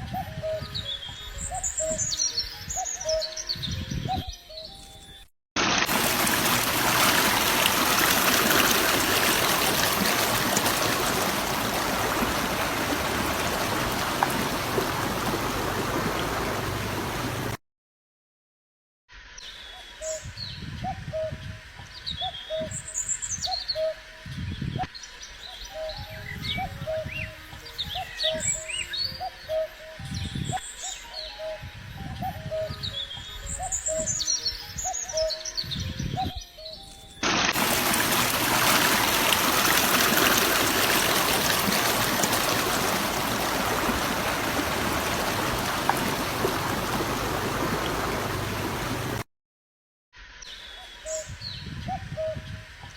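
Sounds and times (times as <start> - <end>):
birds chirping: 5.9 - 17.6, 37.6 - 49.2
low cooing notes: 37.6 - 49.2.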